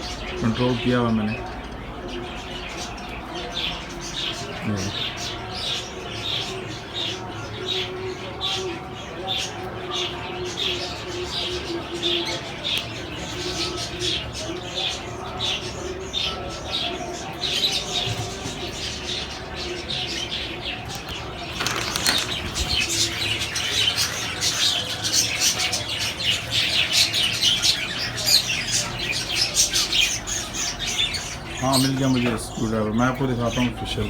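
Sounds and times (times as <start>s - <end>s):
parrots chirping and chattering: 0.0s - 34.0s
wings flapping: 20.9s - 25.4s.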